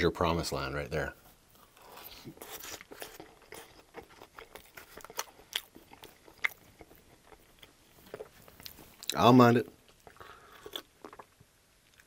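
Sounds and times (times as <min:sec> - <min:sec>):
close chewing mouth clicks: 0:02.2 - 0:09.2, 0:09.9 - 0:12.0.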